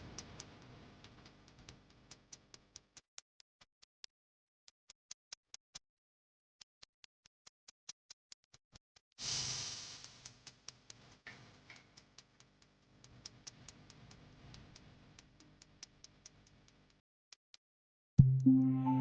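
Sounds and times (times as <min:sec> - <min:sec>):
faint hiss: 0:09.2 - 0:10.5
faint clock-like ticking: 0:10.0 - 0:17.0
background music bed: 0:18.2 - 0:19.0.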